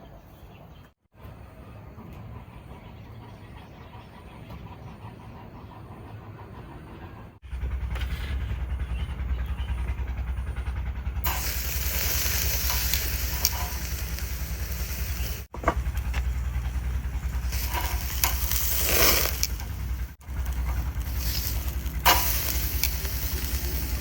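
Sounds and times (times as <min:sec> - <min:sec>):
steady low rumble: 0:04.6 - 0:24.0
food sizzling in a pan: 0:11.3 - 0:15.5, 0:17.5 - 0:19.6, 0:21.0 - 0:24.0
campfire crackles: 0:11.3 - 0:24.0.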